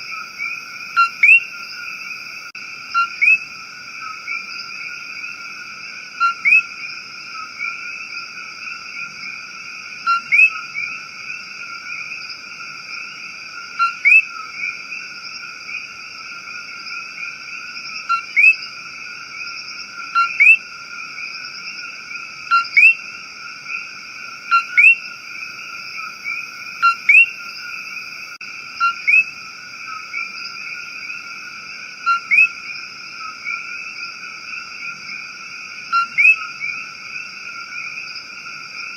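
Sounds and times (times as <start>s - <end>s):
frog rising chirp call: 0.0s - 2.2s, 2.8s - 12.3s, 13.8s - 15.0s, 18.0s - 18.7s, 19.3s - 20.7s, 21.3s - 28.1s, 28.7s - 35.2s, 35.8s - 38.0s
frog chorus trilling drone: 0.0s - 38.9s.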